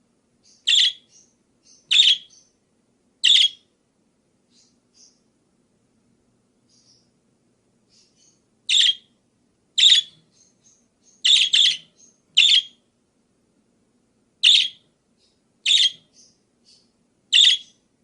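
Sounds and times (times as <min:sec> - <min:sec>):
budgerigar chirping: 0:00.4 - 0:02.6, 0:03.2 - 0:03.7, 0:07.9 - 0:09.2, 0:09.8 - 0:12.8, 0:14.4 - 0:17.8.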